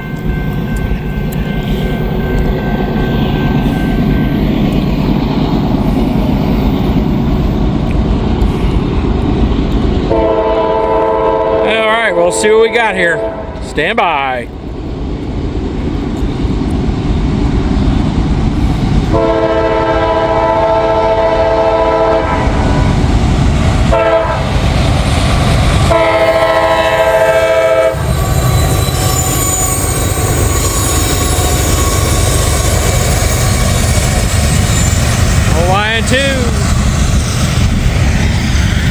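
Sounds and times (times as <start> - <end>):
train rumbling past: 0.0 - 38.9
locomotive horn blasts: 10.1 - 12.4, 13.0 - 13.6, 19.1 - 23.0, 23.9 - 24.5, 25.9 - 28.1.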